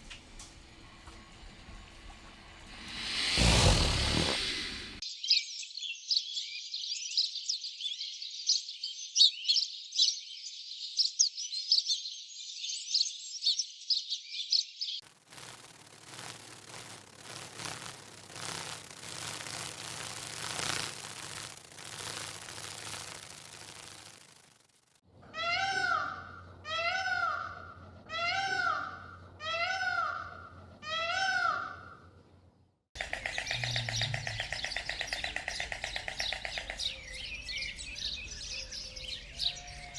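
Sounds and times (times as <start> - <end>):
dense high chirping: 2.5 - 5.0, 15.0 - 25.0, 33.0 - 39.9
buzzing chatter: 2.6 - 5.0, 15.0 - 25.0, 33.0 - 39.9
animal calls rising and falling: 2.7 - 5.0, 33.0 - 37.7
rustling noise: 15.0 - 25.0.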